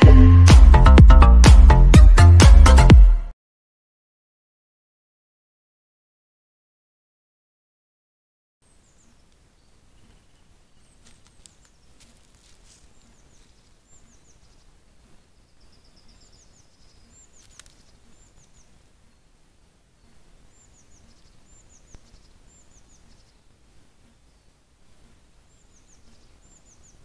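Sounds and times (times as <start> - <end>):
low background noise: 8.6 - 27.0.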